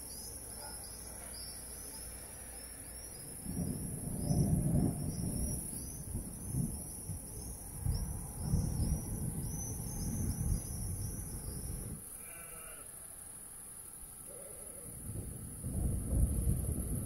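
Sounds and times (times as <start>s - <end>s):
rolling thunder rumbling: 2.8s - 12.1s, 14.8s - 17.0s
sheep bleat: 12.2s - 13.0s.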